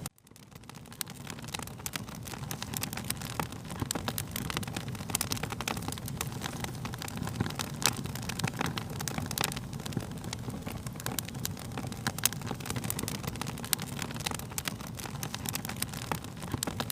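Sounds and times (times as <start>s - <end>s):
fire crackling and popping: 0.0s - 16.9s
low rumble of flames: 0.0s - 16.9s.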